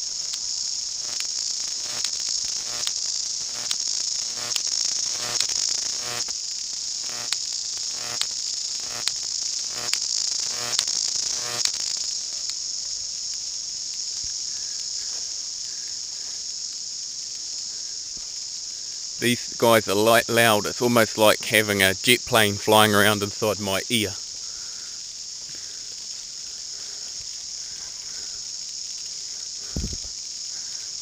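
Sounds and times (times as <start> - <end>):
cicadas buzzing: 0.0 - 31.0
sharp clicks: 1.0 - 6.4, 7.0 - 12.6.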